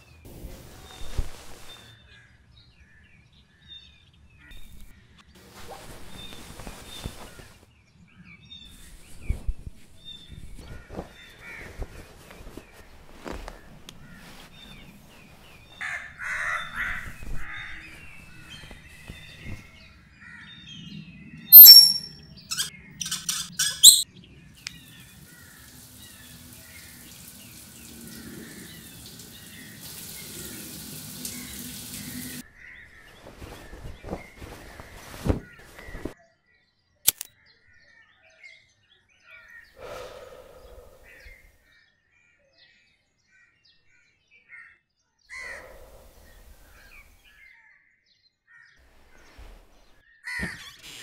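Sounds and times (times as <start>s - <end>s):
shower spraying water: 0.3s - 1.9s, 24.7s - 32.4s
birds calling: 5.5s - 7.6s, 8.7s - 20.8s, 21.5s - 36.2s, 39.6s - 41.6s
sharp squeaky clicks: 21.6s - 24.0s, 50.5s - 51.0s.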